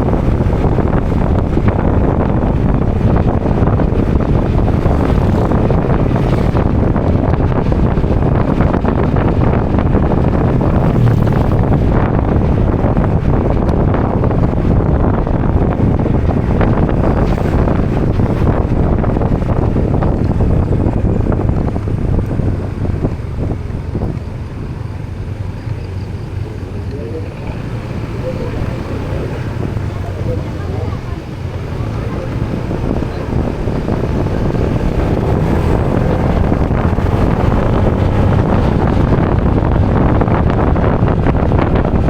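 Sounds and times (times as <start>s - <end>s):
motorbike engine rumble: 0.0s - 42.0s
road noise: 0.0s - 42.0s
wind rushing over microphone: 0.0s - 42.0s.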